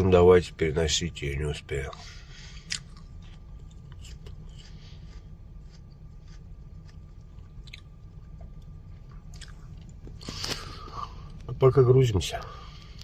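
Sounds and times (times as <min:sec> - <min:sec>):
steady low hum: 0:00.0 - 0:13.0
person crunching apple: 0:02.0 - 0:11.4.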